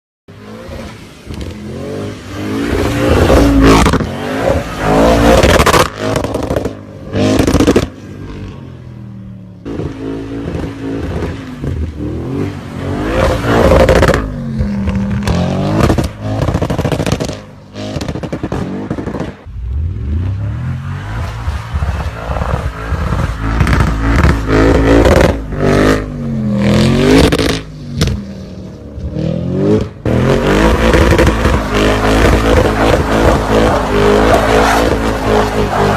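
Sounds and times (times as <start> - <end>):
car engine revving hard: 29.1 - 35.9.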